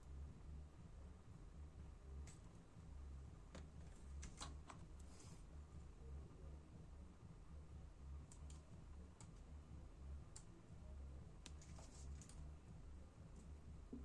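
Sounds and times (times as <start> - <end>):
low hum: 0.0 - 14.0
small laptop parts clicking: 3.5 - 5.1, 8.3 - 9.5.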